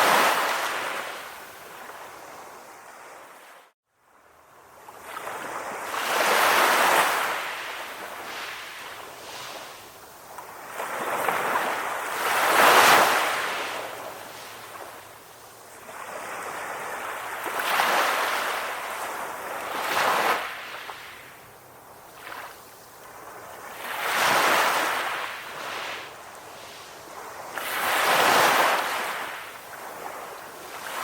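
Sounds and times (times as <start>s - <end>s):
ocean waves breaking: 0.0s - 2.2s, 10.4s - 15.2s, 15.8s - 31.0s.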